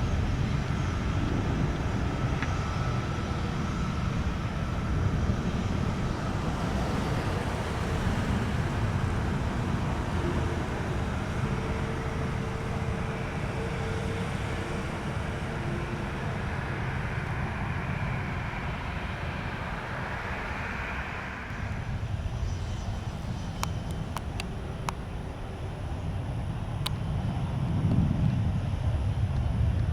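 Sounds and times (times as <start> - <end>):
high jet engine hiss: 0.0 - 29.9
jet engines rumbling: 0.0 - 29.9.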